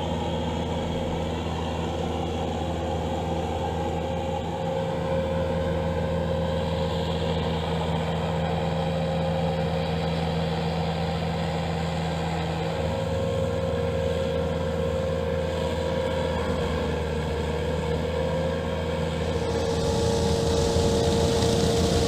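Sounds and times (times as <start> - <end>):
brush cutter engine running: 18.7 - 22.0.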